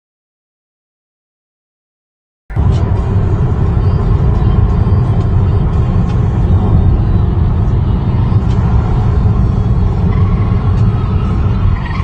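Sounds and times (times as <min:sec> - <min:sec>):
car road and engine rumble: 0:02.5 - 0:12.0.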